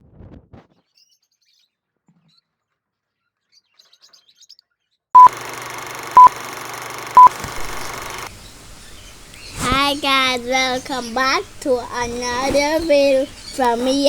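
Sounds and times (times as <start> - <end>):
short electronic beeps: 5.2 - 5.4, 6.2 - 6.4, 7.2 - 8.3
steady hiss: 5.3 - 14.0
faint high bird chirps: 7.2 - 14.0.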